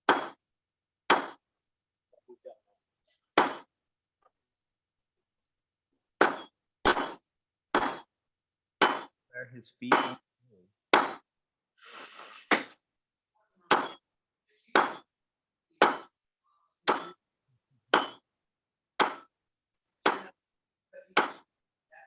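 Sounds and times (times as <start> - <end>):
sledgehammer clanging on anvil: 9.9 - 10.2, 13.7 - 14.0, 18.0 - 18.2.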